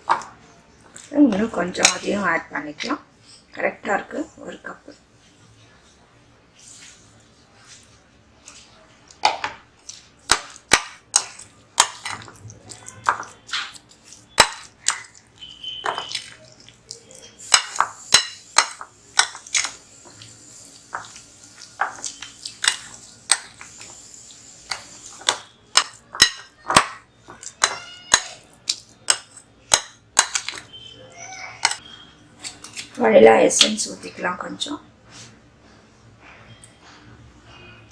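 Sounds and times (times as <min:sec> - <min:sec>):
spoon clinking against bowl: 0:14.4 - 0:16.4, 0:17.2 - 0:19.8, 0:25.2 - 0:30.8.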